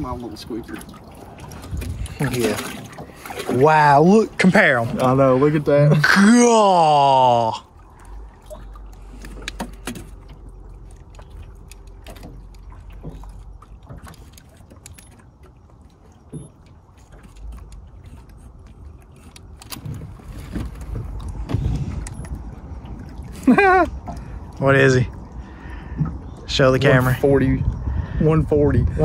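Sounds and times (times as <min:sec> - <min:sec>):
steady low rumble: 0:19.8 - 0:29.0.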